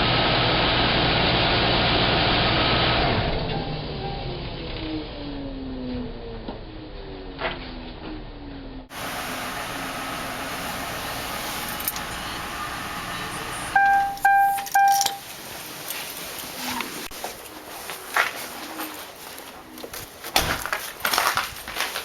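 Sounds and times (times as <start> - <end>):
steady hum: 8.9 - 15.2
short electronic beeps: 13.6 - 15.2.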